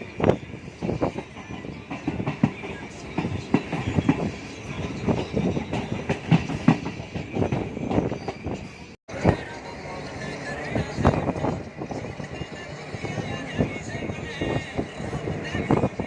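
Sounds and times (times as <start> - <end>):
train wheels clattering: 0.0 - 8.9
train rumble: 0.0 - 16.0.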